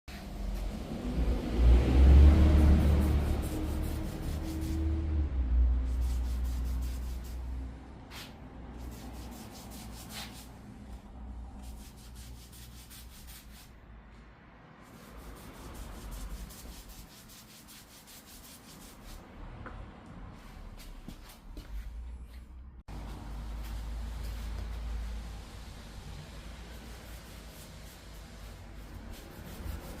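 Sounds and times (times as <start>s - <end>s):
low rumble: 0.2s - 8.8s.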